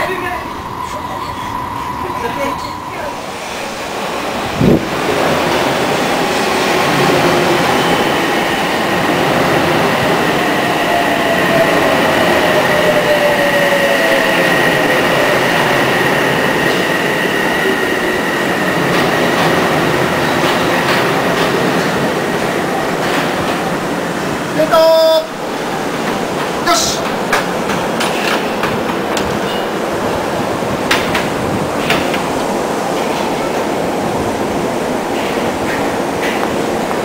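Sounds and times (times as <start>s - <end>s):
high squeal: 0.0s - 3.8s
train wheel and running noise: 0.0s - 37.0s.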